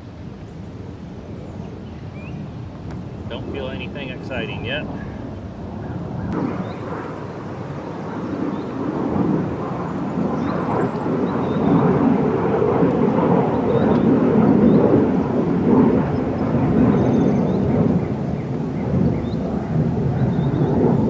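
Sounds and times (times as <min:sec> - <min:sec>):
low rushing rumble: 0:02.9 - 0:10.8.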